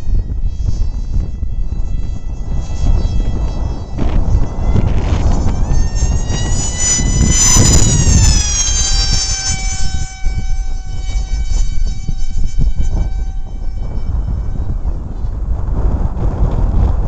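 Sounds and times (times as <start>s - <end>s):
model plane whistling past: 0.0s - 17.0s
wind buffeting microphone: 0.0s - 17.0s.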